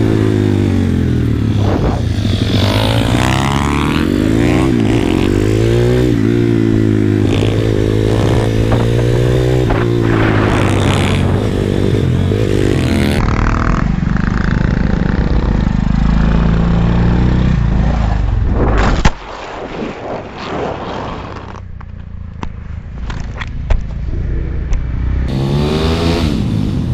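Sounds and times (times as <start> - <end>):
motorbike engine revving: 0.0 - 18.4, 24.9 - 26.9.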